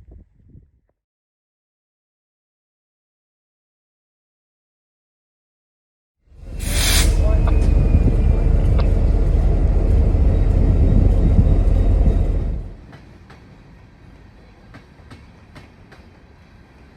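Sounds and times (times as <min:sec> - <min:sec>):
train rumbling: 0:06.3 - 0:16.9.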